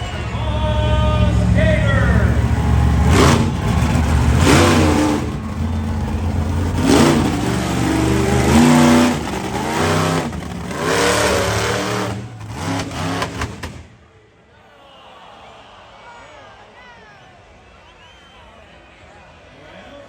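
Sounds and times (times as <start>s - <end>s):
monster truck engine revving: 0.0s - 14.0s.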